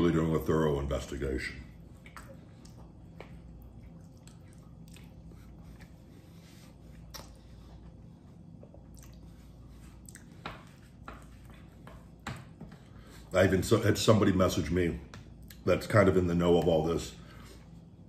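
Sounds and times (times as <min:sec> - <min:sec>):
man chewing food: 0:01.8 - 0:13.3.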